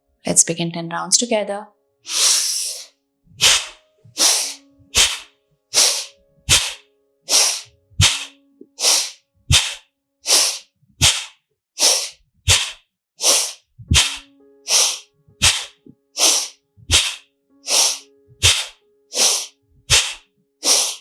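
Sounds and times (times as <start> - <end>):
forceful nasal breathing: 2.1 - 21.0.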